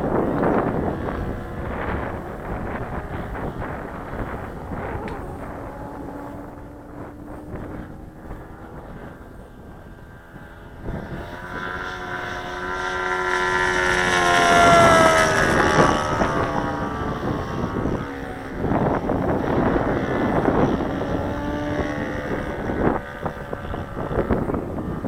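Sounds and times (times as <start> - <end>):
model plane engine flying past: 0.0 - 25.0
wind noise on microphone: 0.0 - 25.0.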